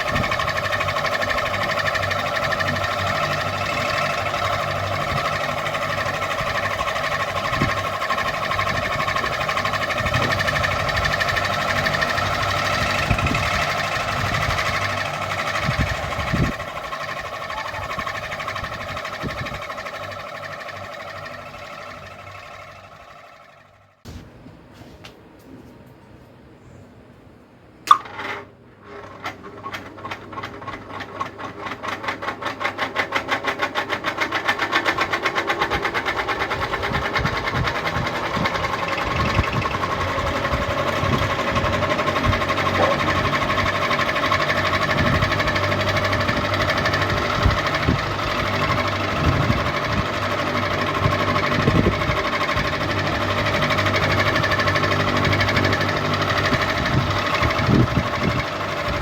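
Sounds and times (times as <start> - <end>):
ceiling fan whirring: 0.0 - 59.0
fan switch click: 27.8 - 28.1.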